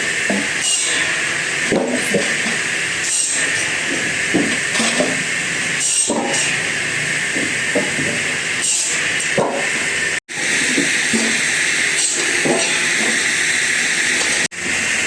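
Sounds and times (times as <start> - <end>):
wood-processing machinery hissing: 0.0 - 15.0
knocks and clunks of wood: 0.3 - 0.5, 1.7 - 2.6, 3.9 - 5.2, 7.4 - 8.2, 9.3 - 9.7, 12.4 - 13.2.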